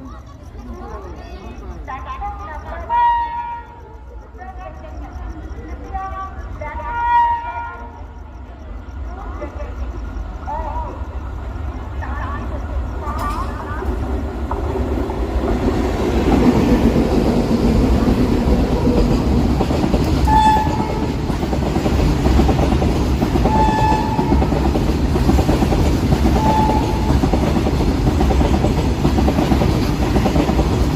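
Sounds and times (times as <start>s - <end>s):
freight train rumble: 0.0s - 30.9s
twin-tone locomotive horn: 6.9s - 7.9s, 20.2s - 21.2s, 23.4s - 24.6s, 26.3s - 27.3s.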